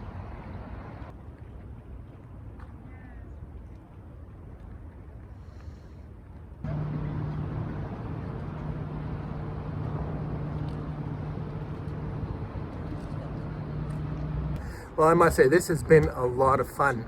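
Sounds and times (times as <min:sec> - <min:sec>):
engine humming steadily: 0:00.0 - 0:01.1, 0:06.6 - 0:16.3.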